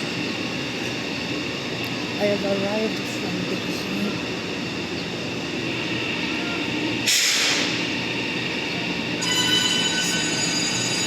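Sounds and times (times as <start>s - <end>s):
train running noise: 0.0s - 11.0s
short hiss: 7.1s - 7.8s
high-pitched whining tones: 9.2s - 11.0s.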